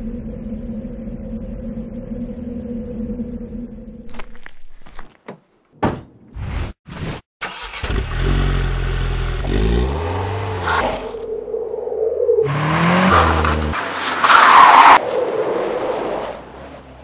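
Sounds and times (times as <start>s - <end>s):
car engine revving: 7.5s - 11.2s, 12.4s - 14.0s.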